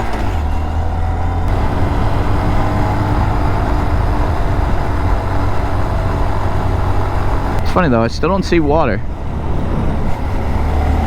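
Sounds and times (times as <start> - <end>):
small motorcycle engine running: 0.0 - 7.7
wind rushing over microphone: 1.5 - 11.0.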